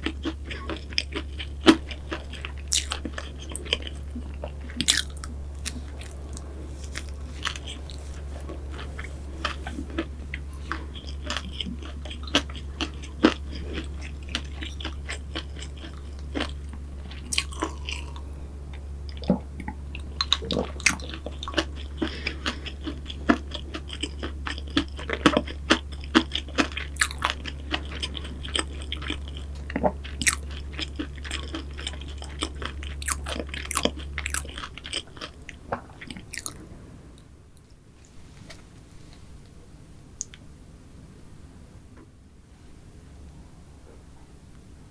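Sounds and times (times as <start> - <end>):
close-miked biting and chewing: 0.0 - 18.3, 19.1 - 36.6
steady low hum: 0.0 - 44.9.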